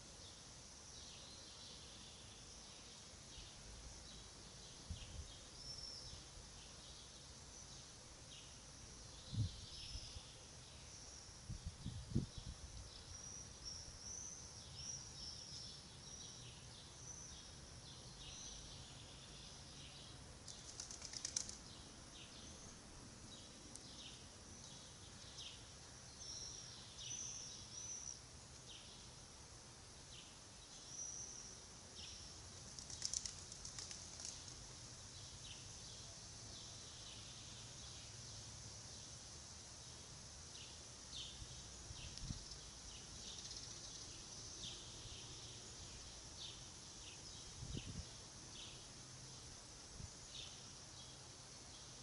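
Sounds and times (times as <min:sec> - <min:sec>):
small birds chirping: 0:00.0 - 0:52.0
wings fluttering rapidly: 0:20.4 - 0:21.7, 0:32.6 - 0:34.6.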